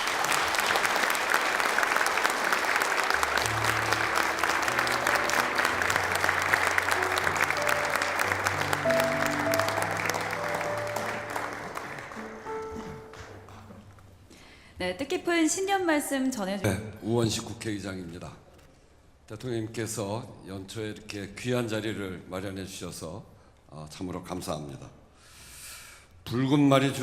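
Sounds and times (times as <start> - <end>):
audience applauding: 0.0 - 14.2
instrumental music: 2.8 - 14.2.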